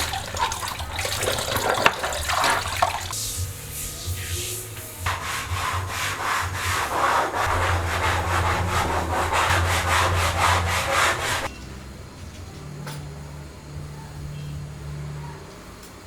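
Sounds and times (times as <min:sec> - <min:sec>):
rapid scraping strokes: 0:00.0 - 0:11.5.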